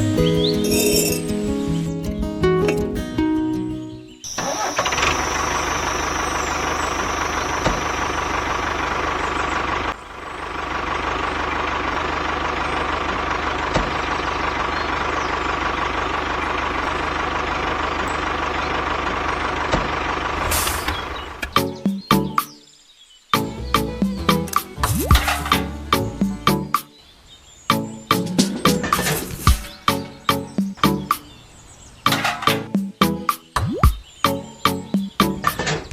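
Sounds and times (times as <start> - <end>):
small engine running: 4.3 - 21.4.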